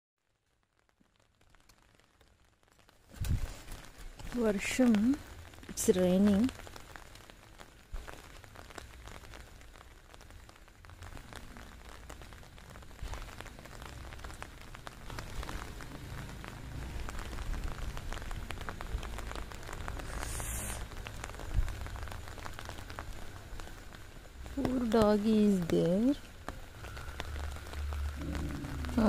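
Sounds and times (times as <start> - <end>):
rain patter on surfaces: 0.2 - 29.0.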